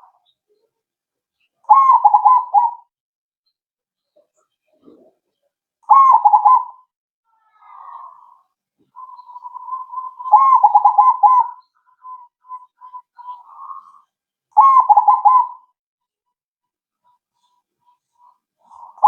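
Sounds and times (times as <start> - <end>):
dove cooing with trilled phrases: 1.7 - 2.9, 5.8 - 6.8, 9.0 - 15.7, 18.6 - 19.0.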